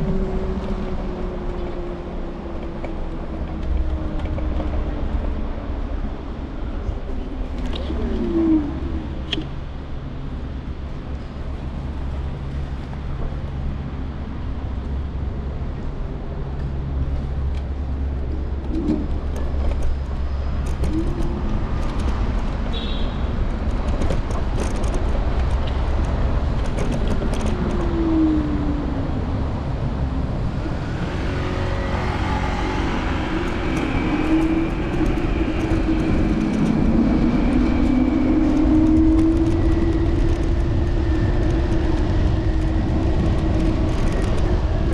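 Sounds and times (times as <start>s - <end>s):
vehicles passing: 0.0s - 44.9s
vehicle engine accelerating: 26.8s - 44.9s.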